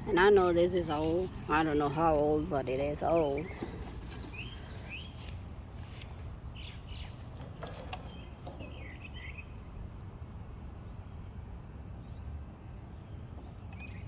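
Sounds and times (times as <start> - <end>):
songbird chirping: 0.0 - 9.8
low outdoor rumble: 0.0 - 14.0.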